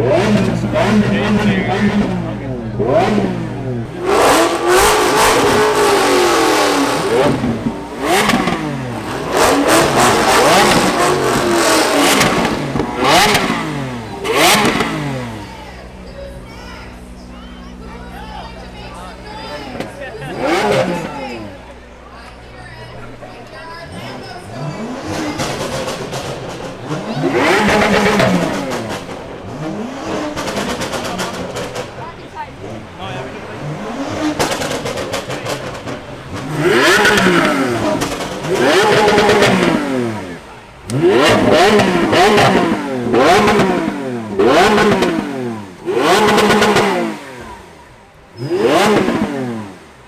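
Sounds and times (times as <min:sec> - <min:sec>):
car engine revving: 0:00.0 - 0:50.0.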